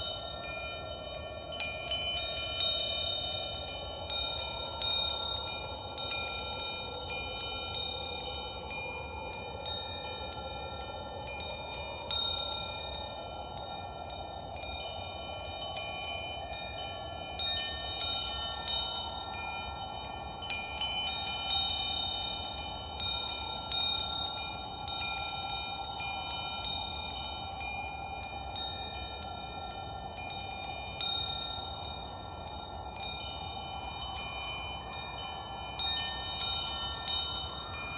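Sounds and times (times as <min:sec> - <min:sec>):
wind chimes ringing: 0:00.0 - 0:37.9.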